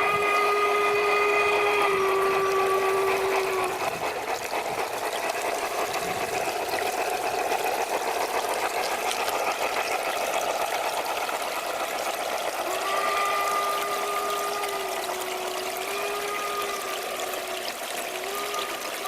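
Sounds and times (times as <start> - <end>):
steam locomotive whistle: 0.0 - 4.0, 12.7 - 19.0
model steam locomotive chuffing: 0.0 - 19.0.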